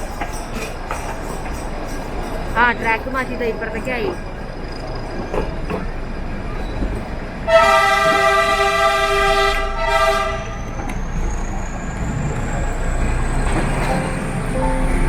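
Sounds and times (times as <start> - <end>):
train rumble: 0.0 - 15.0
locomotive horn blast: 7.5 - 10.6.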